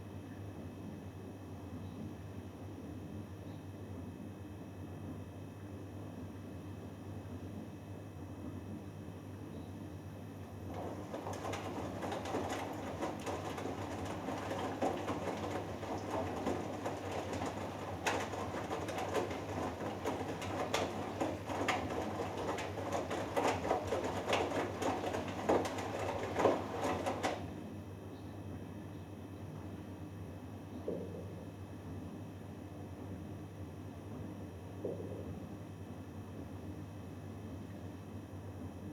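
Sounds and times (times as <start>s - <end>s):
washing machine drum tumbling: 10.6s - 27.6s.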